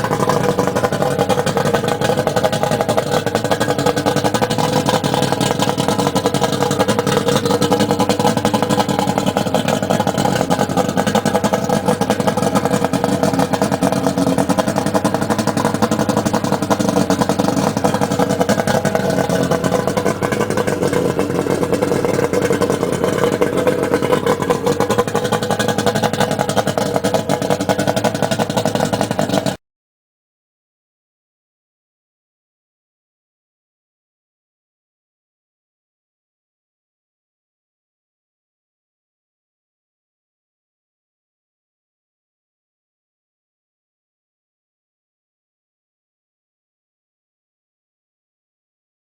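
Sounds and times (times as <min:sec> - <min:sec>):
outboard motor running: 0:00.0 - 0:29.6.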